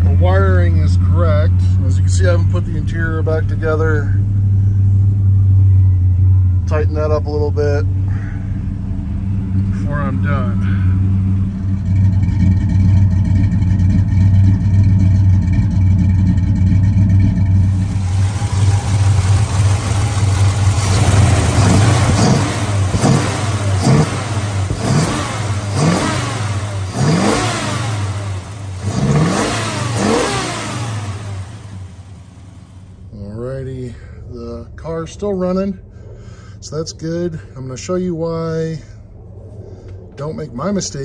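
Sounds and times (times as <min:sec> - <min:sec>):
car engine idling: 0:00.0 - 0:41.0
engine revving: 0:07.9 - 0:33.0.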